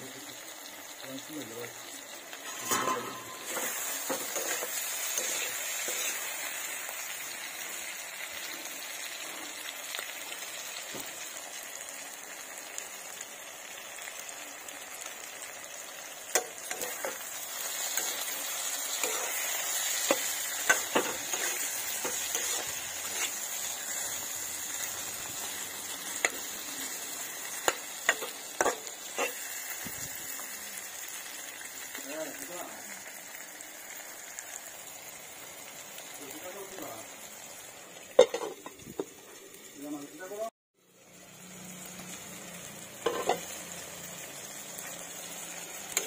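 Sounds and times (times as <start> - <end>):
vegetables sizzling in oil: 0.0 - 46.0
metal spatula scraping pan: 2.4 - 6.6, 16.6 - 24.0, 43.0 - 43.5.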